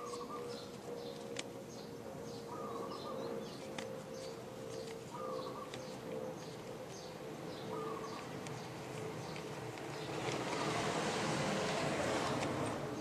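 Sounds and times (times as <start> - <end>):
high bird chirps: 0.0 - 9.4.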